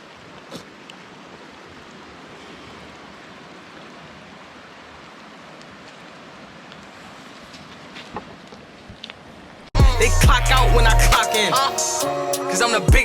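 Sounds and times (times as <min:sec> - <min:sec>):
river water rushing: 0:00.0 - 0:08.0.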